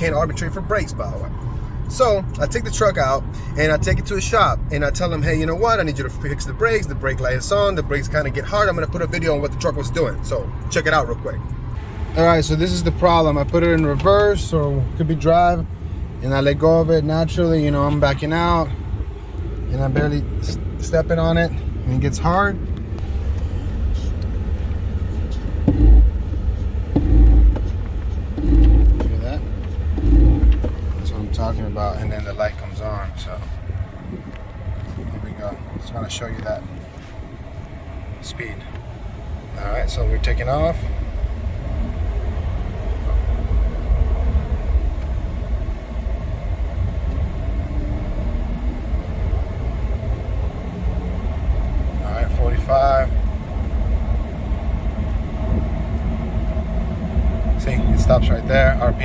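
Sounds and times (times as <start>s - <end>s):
pickup engine rumbling: 0.0s - 59.0s
road noise: 0.0s - 59.0s
engine surge: 11.8s - 33.6s.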